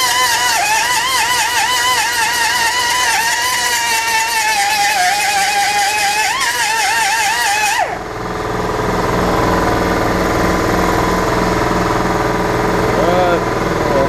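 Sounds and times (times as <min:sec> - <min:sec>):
angle grinder whining on steel: 0:00.0 - 0:14.0
low pulsing engine-like hum: 0:07.3 - 0:14.0.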